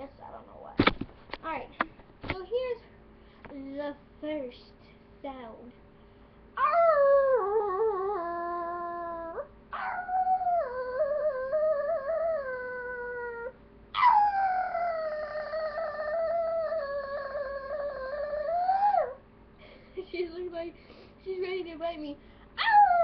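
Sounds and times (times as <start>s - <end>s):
long drawn-out howls: 6.6s - 19.2s.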